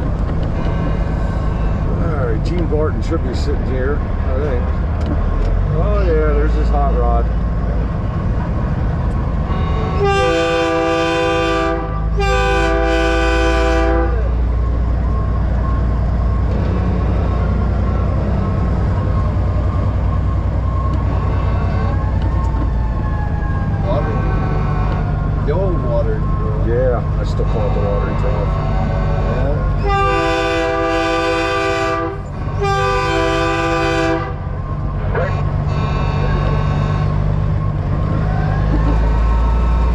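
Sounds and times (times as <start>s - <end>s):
diesel engine rumble: 0.0s - 39.9s
truck train horn blasts: 9.4s - 14.4s, 24.2s - 25.2s, 27.4s - 34.5s, 35.2s - 37.4s.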